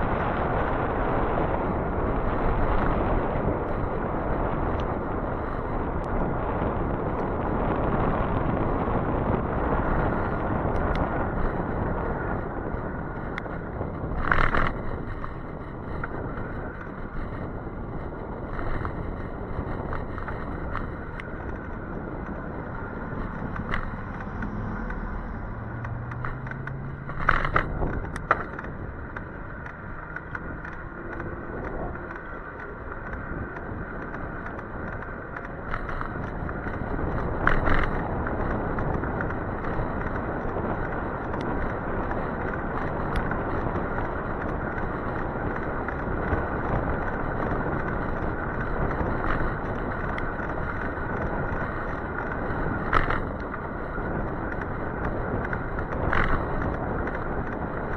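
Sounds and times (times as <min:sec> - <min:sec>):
bike rattles and clicks: 0:00.0 - 0:57.9
low motor hum: 0:00.0 - 0:57.9
wind and road hiss: 0:00.0 - 0:57.9
faint ticks: 0:00.1 - 0:06.2, 0:08.7 - 0:57.9.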